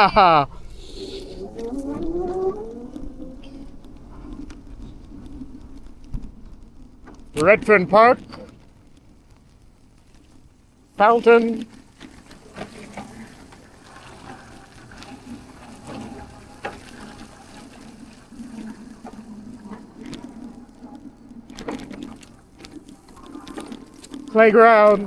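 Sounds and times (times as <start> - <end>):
fountain water splashing: 10.8 - 25.0.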